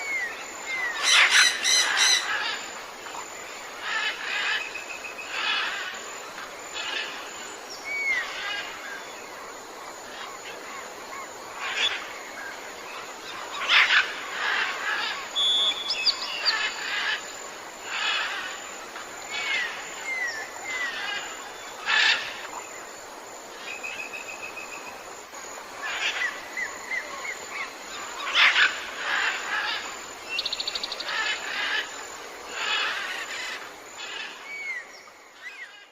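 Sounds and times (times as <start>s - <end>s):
background hiss: 0.0s - 35.9s
harsh bird calls: 0.2s - 2.7s.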